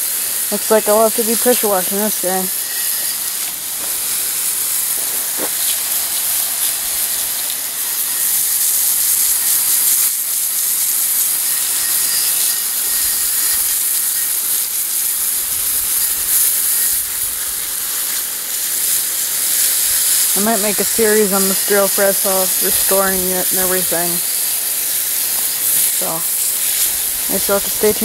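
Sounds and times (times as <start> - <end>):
hose spraying water: 0.0 - 28.0.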